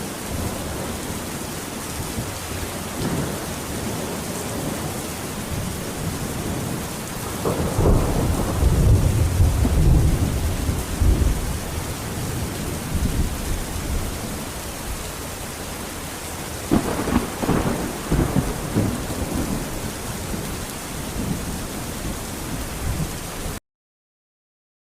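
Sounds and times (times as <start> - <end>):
steady rain: 0.0 - 23.6
thunder rumbling: 0.3 - 15.0, 16.6 - 23.6
thunder crack: 5.5 - 11.5, 16.7 - 19.9.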